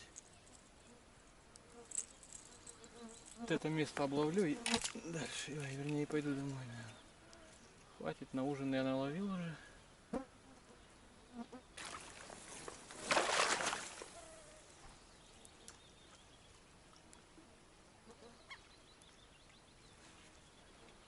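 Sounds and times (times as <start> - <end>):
fishing rod cast rush: 12.9 - 14.2.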